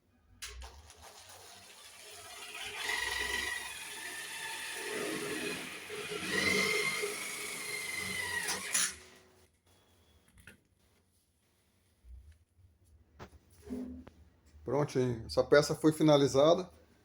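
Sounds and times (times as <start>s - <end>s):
electric drill driving screws: 0.6s - 9.2s.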